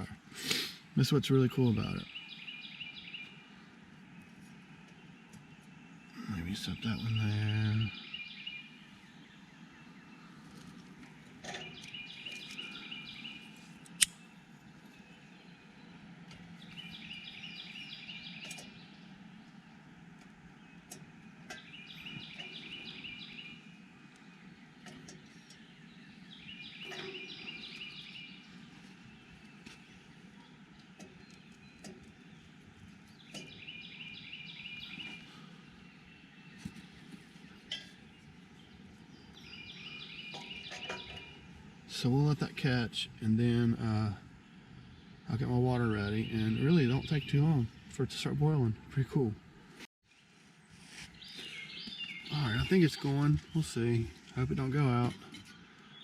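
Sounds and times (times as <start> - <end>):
songbird singing high notes: 6.2 - 10.2, 15.0 - 19.1
sharp snap: 13.9 - 14.2.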